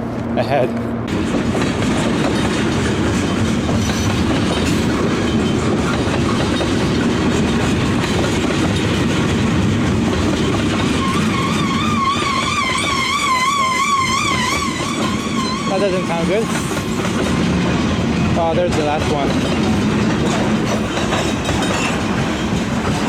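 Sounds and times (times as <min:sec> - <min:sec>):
train wheels on rail: 0:00.0 - 0:23.0
high wavering squeal: 0:10.9 - 0:16.6.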